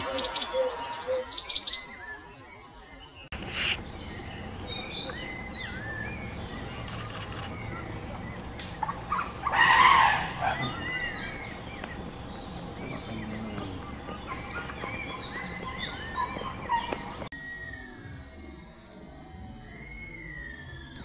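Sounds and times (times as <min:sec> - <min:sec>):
birds chirping: 0:00.0 - 0:21.0
harsh noise burst: 0:03.3 - 0:04.3
low background rumble: 0:03.4 - 0:17.3.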